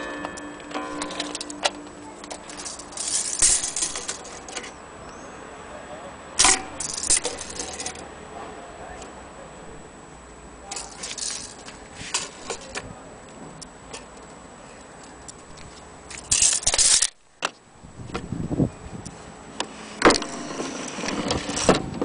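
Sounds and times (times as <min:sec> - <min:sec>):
clock clicks and knocks: 0:00.0 - 0:04.7, 0:06.4 - 0:08.0
light metallic jangling: 0:00.0 - 0:04.7, 0:06.4 - 0:08.0, 0:10.7 - 0:12.8, 0:16.1 - 0:17.2
rattling burst: 0:02.2 - 0:04.7, 0:06.4 - 0:08.0.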